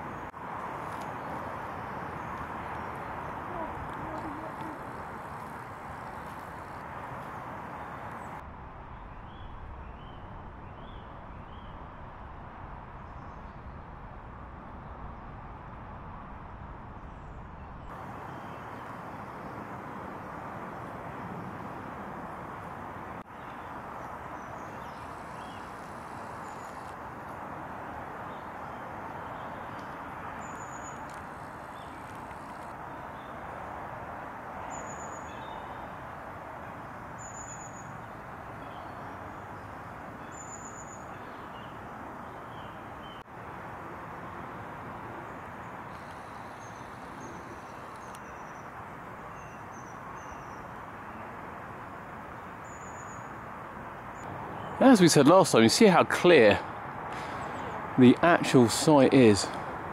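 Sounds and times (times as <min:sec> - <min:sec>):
distant traffic: 0:00.0 - 0:59.9
outdoor background rush: 0:00.0 - 0:59.9
bird chirping: 0:23.3 - 0:27.0, 0:28.3 - 0:33.4, 0:37.2 - 0:38.0, 0:38.6 - 0:43.3, 0:45.3 - 0:51.2.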